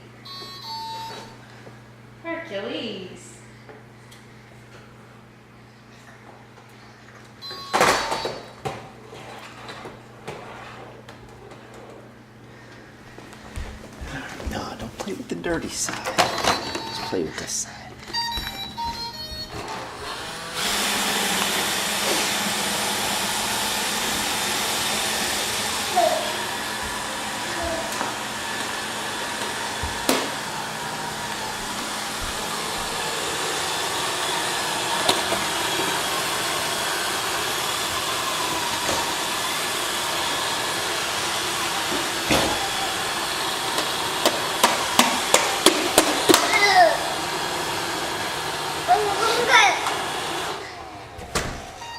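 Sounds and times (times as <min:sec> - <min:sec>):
robot vacuum running: 0:14.4 - 0:51.9.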